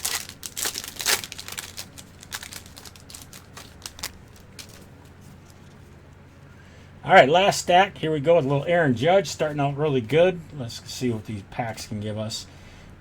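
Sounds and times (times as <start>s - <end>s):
foil card packs crinkling: 0.0s - 5.7s.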